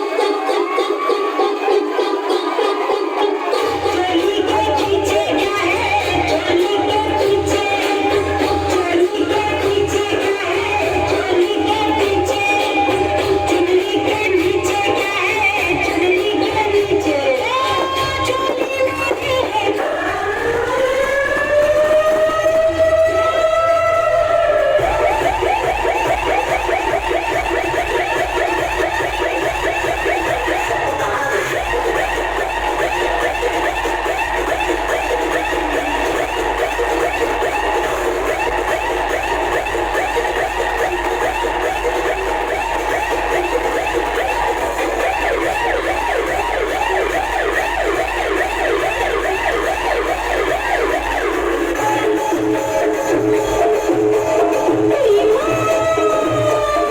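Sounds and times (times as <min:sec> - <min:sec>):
fast warbling electronic siren: 0:19.8 - 0:56.9.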